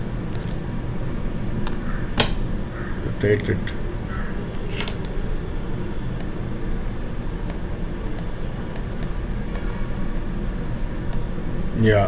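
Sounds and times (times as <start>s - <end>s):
low background hum: 0.0s - 12.0s
mouse and keyboard clicks: 4.7s - 5.2s.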